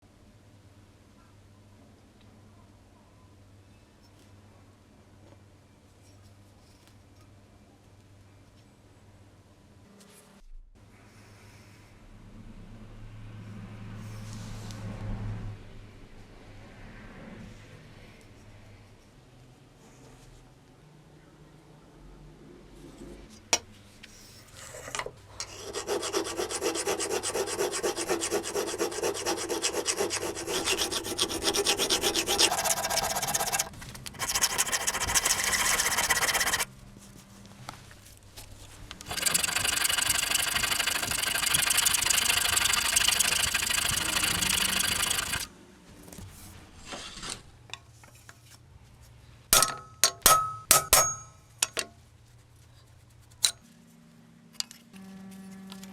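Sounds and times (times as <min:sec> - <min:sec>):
tool rasping against a knife: 0:24.5 - 0:36.7, 0:39.1 - 0:45.5.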